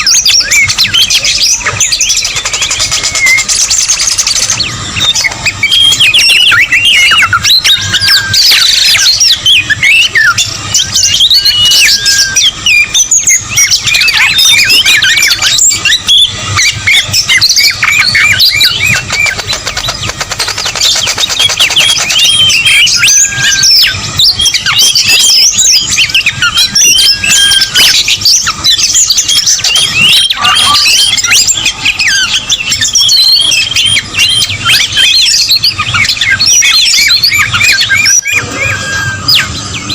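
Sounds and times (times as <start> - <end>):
songbird whistles and chirps: 0.0 - 39.9.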